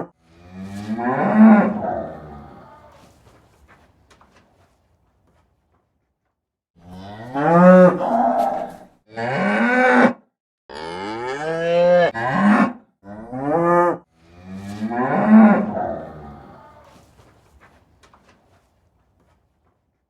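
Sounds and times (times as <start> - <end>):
cow mooing: 0.0 - 2.9, 6.8 - 16.9.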